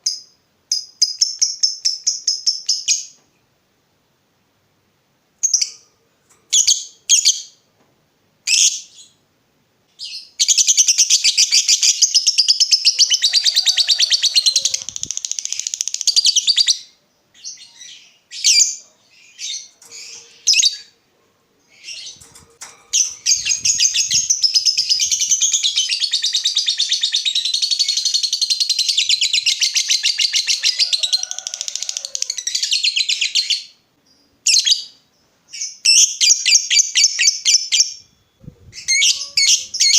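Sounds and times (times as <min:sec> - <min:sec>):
sharp bird chirps: 0:23.0 - 0:30.6
bird chattering trills: 0:38.4 - 0:39.9.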